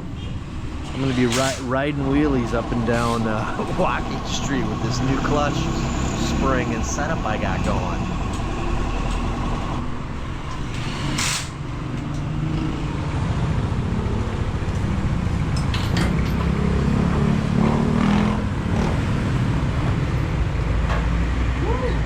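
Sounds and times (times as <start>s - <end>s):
traffic engines rumbling: 0.0s - 22.0s.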